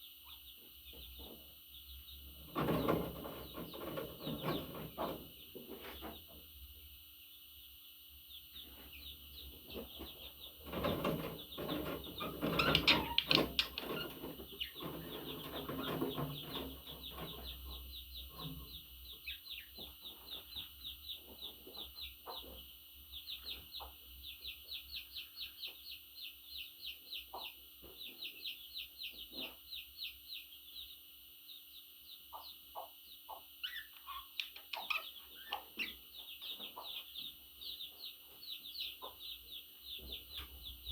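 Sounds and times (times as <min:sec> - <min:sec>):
budgerigars chirping: 0:08.6 - 0:25.8, 0:32.3 - 0:40.9.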